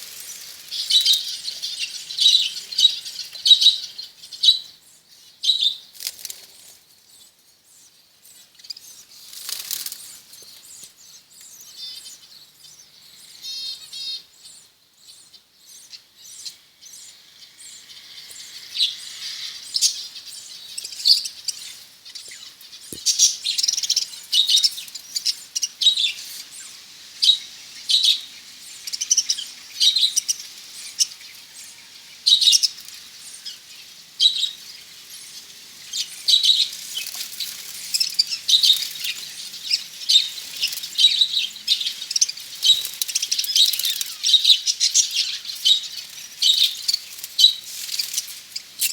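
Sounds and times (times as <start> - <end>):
budgerigars chirping: 18.7 - 31.2, 37.9 - 47.6.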